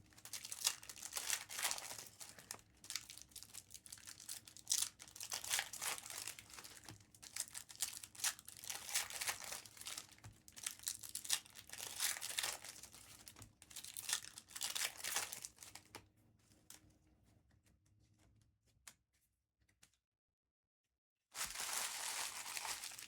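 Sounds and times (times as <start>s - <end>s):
wrappers tearing and crinkling: 0.1s - 15.9s, 21.4s - 23.0s.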